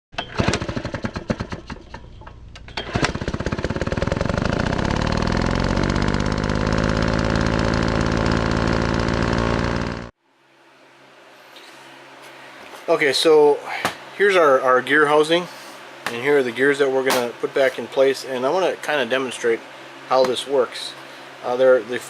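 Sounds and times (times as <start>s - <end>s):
small engine starting and revving: 0.2s - 10.2s.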